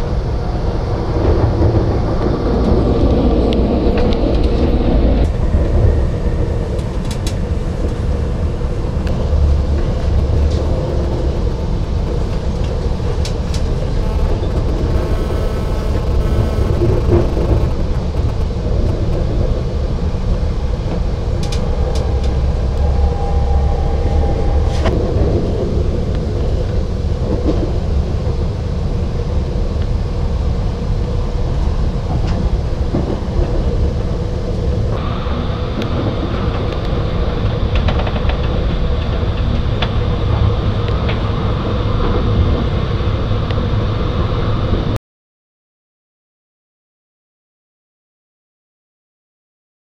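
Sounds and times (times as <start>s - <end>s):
train rumbling on track: 0.0s - 45.0s
wheels clicking on rails: 1.1s - 25.3s, 32.0s - 42.7s.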